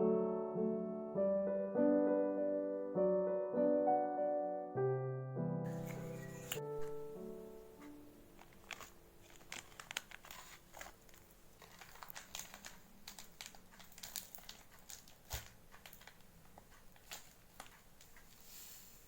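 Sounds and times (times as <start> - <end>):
piano music: 0.0 - 8.8
light objects clicking and crinkling: 7.7 - 18.5.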